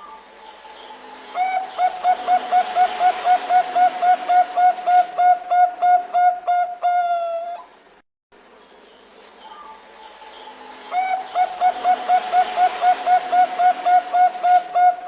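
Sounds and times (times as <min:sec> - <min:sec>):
dove cooing: 0:01.4 - 0:07.7, 0:10.9 - 0:15.0.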